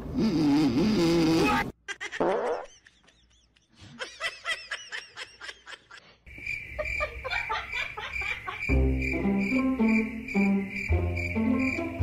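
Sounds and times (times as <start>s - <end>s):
person giggling: 1.8s - 6.1s.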